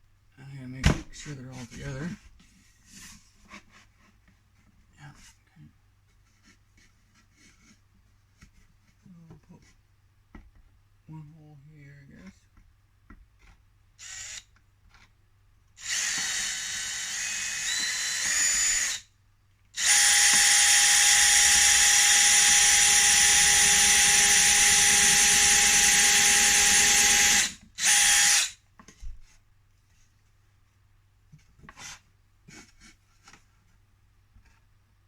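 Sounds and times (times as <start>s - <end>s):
electric drill drilling: 14.0s - 14.5s, 15.8s - 19.0s, 19.8s - 28.6s.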